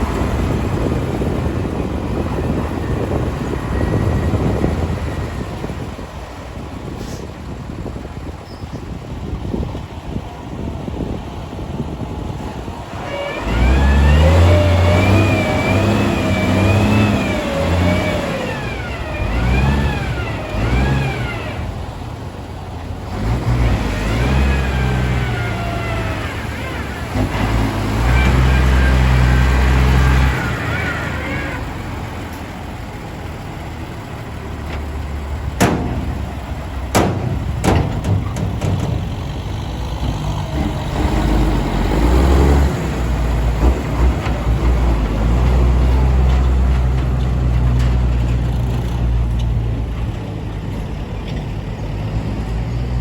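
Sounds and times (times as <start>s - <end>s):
dump trucks driving by: 0.0s - 53.0s.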